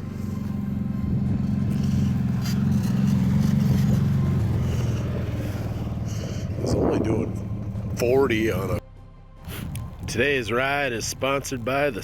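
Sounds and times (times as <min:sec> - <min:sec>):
atv engine running: 0:00.0 - 0:08.8, 0:09.5 - 0:12.0.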